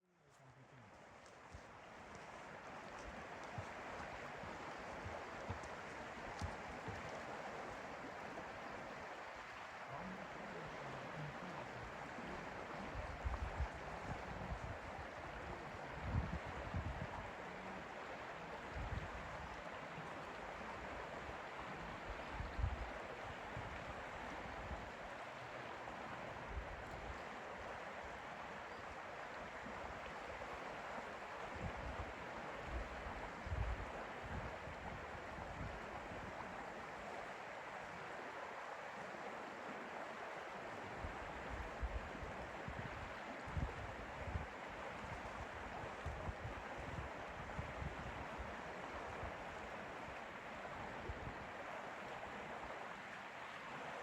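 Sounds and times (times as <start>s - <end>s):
lake water lapping: 0.3s - 16.0s
wind buffeting microphone: 13.0s - 17.3s.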